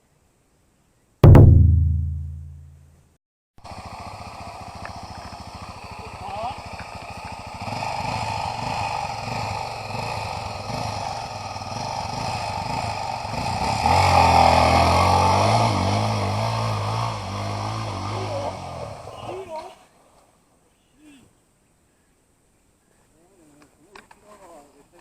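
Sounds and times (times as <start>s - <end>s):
motorcycle engine revving: 3.8s - 19.0s.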